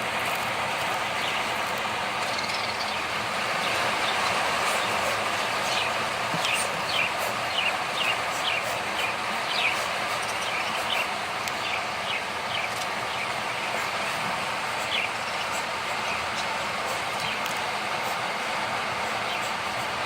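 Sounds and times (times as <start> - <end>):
cage birds chirping: 0.0 - 20.0
steady hiss: 0.0 - 20.0.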